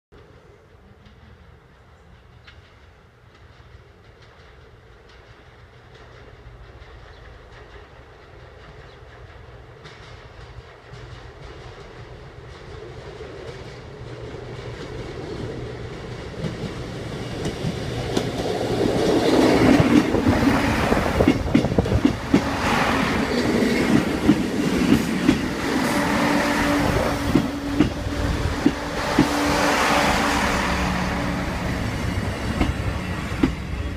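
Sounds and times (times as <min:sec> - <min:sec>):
train engine hum: 0:00.2 - 0:33.9
train wheels clacking over joints: 0:02.3 - 0:30.4, 0:31.2 - 0:33.9.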